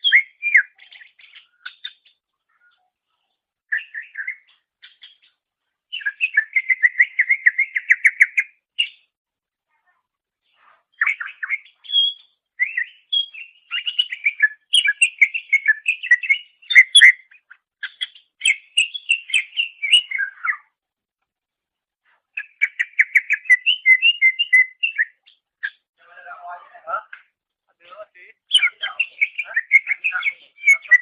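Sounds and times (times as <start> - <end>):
bird singing chirps and whistles: 0.0 - 2.0, 3.7 - 5.3, 5.9 - 9.0, 11.0 - 20.7, 22.4 - 25.8, 28.5 - 31.0.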